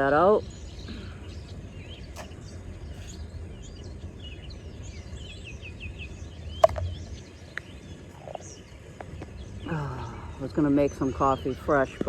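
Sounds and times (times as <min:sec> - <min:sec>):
songbirds chirping and singing: 0:00.0 - 0:12.0
steady low rumble: 0:06.1 - 0:08.6.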